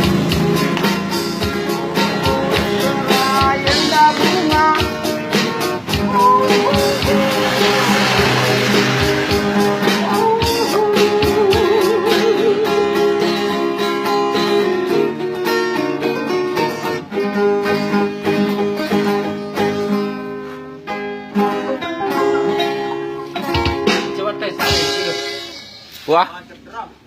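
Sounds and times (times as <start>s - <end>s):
acoustic guitar playing: 0.0s - 26.0s.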